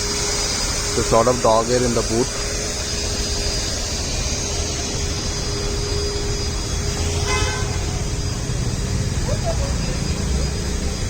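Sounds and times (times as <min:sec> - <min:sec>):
vacuum cleaner running: 0:00.0 - 0:11.0
short horn toot: 0:07.0 - 0:07.9.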